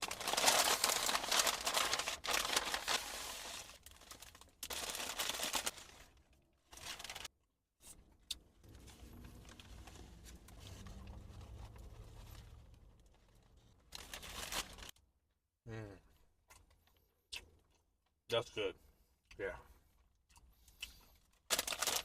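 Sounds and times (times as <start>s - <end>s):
paper wrapper crinkling and tearing: 0.0s - 7.3s, 13.5s - 15.0s, 21.5s - 22.0s.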